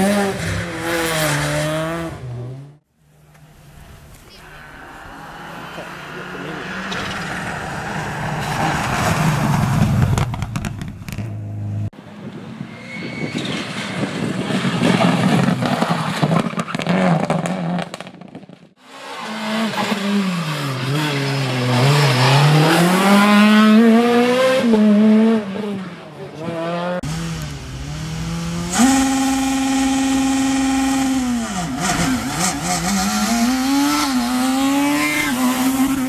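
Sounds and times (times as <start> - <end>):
rally car engine revving: 0.0 - 2.8, 4.6 - 11.8, 18.9 - 36.0
tyre squeal: 12.6 - 15.2.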